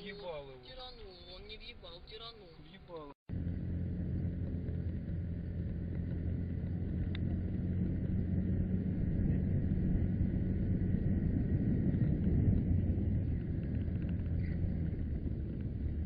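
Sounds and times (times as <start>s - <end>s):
road noise: 0.0s - 16.0s
car engine rumble: 3.3s - 16.0s.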